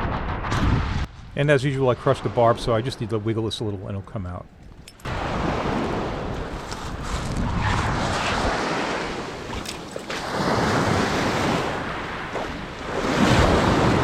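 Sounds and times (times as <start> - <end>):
ocean surf breaking: 1.3 - 4.0, 5.1 - 14.0
wind buffeting microphone: 4.4 - 14.0.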